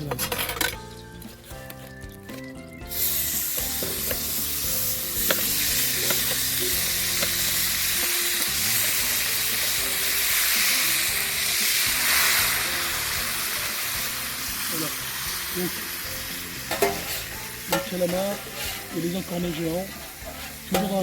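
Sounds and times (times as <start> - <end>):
food sizzling in hot oil: 0.5 - 21.0
utensil clicking against pan: 5.2 - 7.6.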